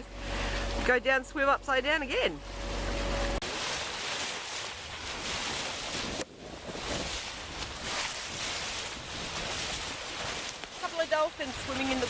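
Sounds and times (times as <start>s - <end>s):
water rushing along hull: 0.0s - 12.0s
wind buffeting microphone: 4.8s - 12.0s.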